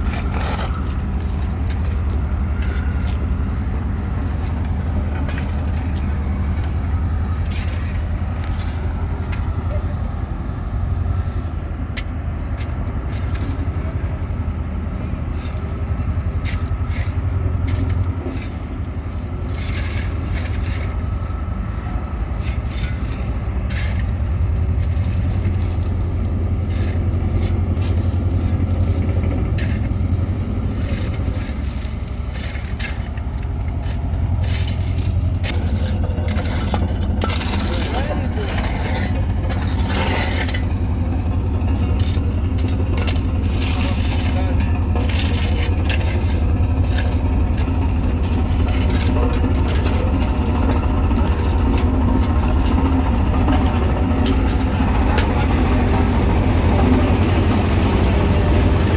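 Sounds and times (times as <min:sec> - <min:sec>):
scraping and crunching: 0:00.0 - 0:09.7, 0:15.3 - 0:58.9
wheel loader diesel engine: 0:00.0 - 0:58.9
clanks: 0:30.7 - 0:56.1.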